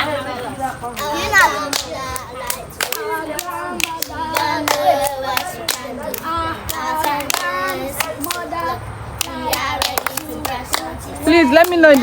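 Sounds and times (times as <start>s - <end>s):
children singing: 1.0s - 11.3s
sharp hand claps: 11.6s - 12.0s.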